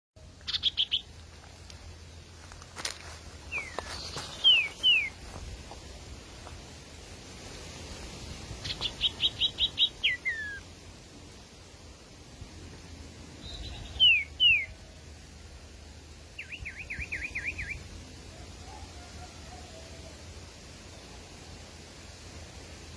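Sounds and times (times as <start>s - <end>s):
bird calling with whistles: 0.5s - 1.1s, 3.5s - 5.2s, 8.6s - 10.6s, 13.4s - 14.8s, 16.4s - 17.8s.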